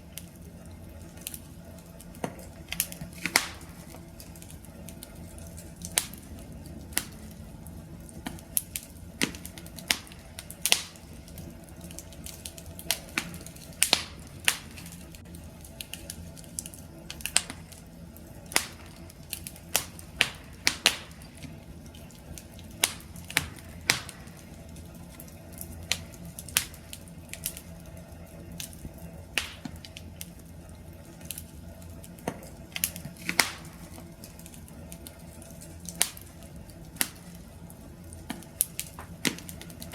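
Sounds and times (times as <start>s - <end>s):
campfire crackling and popping: 0.0s - 39.9s
low rumble of burning: 0.0s - 39.9s.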